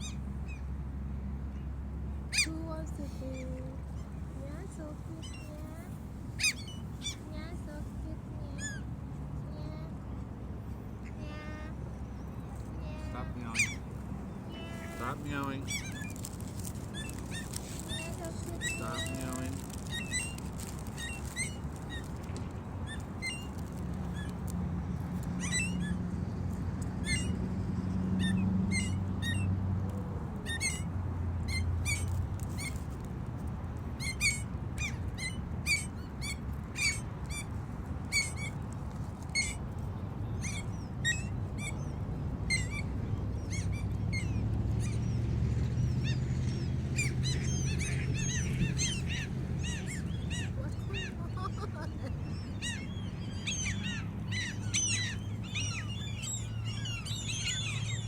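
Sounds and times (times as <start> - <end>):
gulls mewing: 11.0 - 24.6, 40.3 - 58.0.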